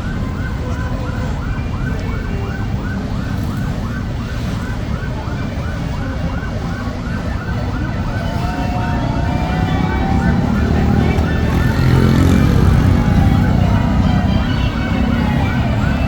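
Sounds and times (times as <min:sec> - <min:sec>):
siren yelping: 0:00.0 - 0:16.0.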